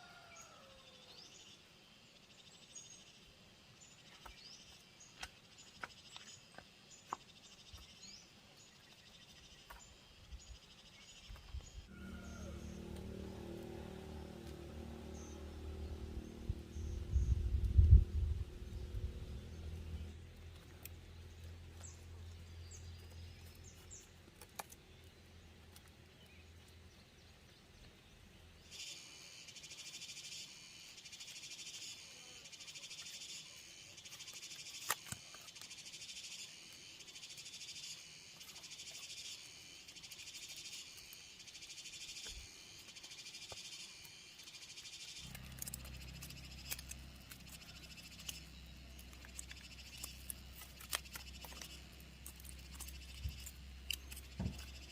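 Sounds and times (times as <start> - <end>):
low hum: 11.8 - 23.6, 45.2 - 54.9.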